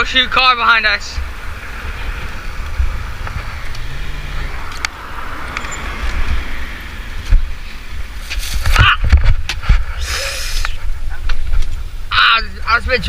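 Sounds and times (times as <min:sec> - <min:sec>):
wind rumble on microphone: 0:00.0 - 0:10.0, 0:10.7 - 0:13.0
car driving past: 0:01.1 - 0:08.4.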